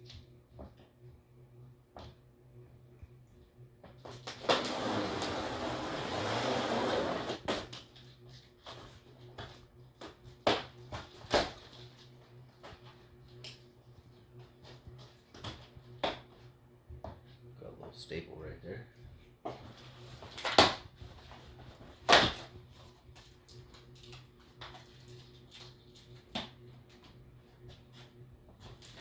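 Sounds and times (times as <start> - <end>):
cardboard scraping and tearing: 4.4 - 7.6.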